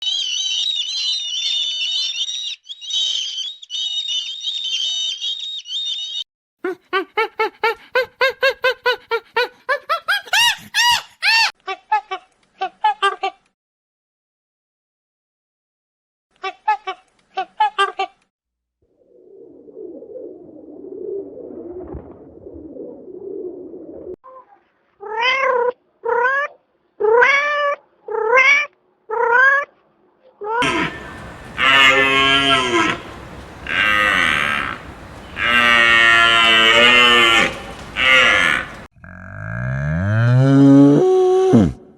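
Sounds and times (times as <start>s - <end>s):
animal rapid pitched calls: 30.6s - 38.9s
low even murmur: 30.6s - 38.9s
small birds chirping: 30.6s - 38.9s.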